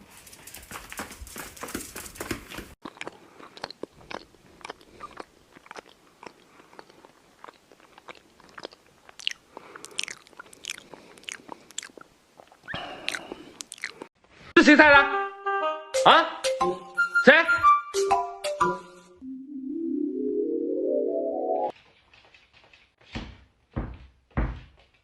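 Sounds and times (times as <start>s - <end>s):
dog crunching something hard: 0.3s - 12.0s.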